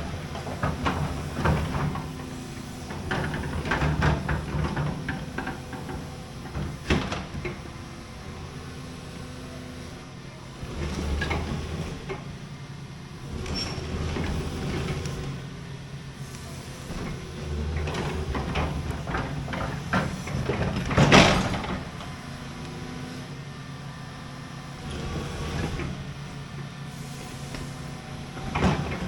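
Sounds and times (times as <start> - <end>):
clunks and rattles: 0.0 - 7.9, 10.7 - 12.4, 13.3 - 15.4, 16.8 - 22.8, 24.8 - 26.5, 27.5 - 29.0
diesel engine idling: 11.4 - 29.0.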